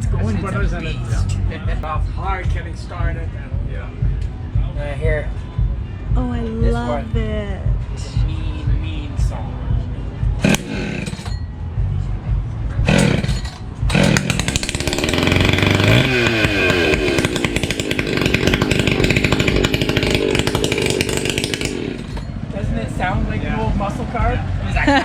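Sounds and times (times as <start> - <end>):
chainsaw pull-starting: 10.4 - 11.3, 12.8 - 22.3
chainsaw running at high revs: 10.4 - 11.3, 12.8 - 22.4.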